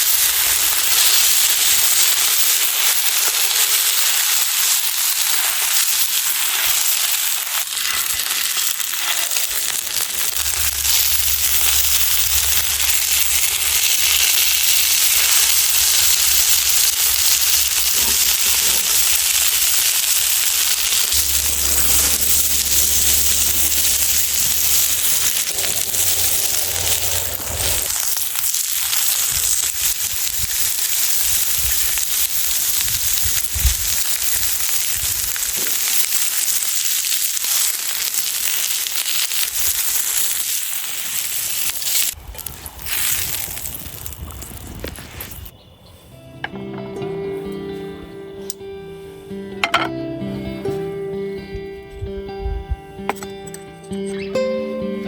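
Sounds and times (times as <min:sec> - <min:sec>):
sizzling with crackles and pops: 0:00.0 - 0:45.6
low hum: 0:09.5 - 0:28.6.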